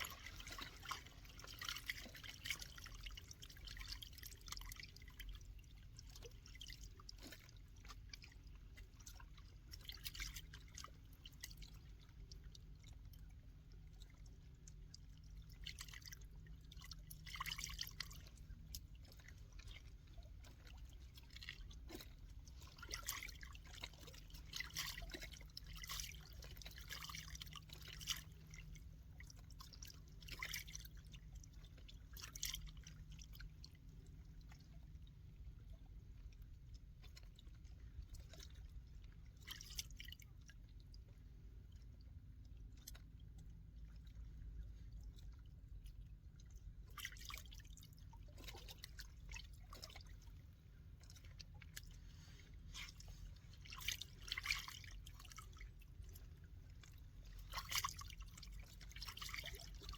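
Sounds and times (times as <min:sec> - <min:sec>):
water splashing: 0:00.0 - 0:13.3, 0:13.9 - 0:59.9
low steady rumble: 0:00.0 - 0:59.9
water lapping and dripping: 0:00.0 - 0:59.9.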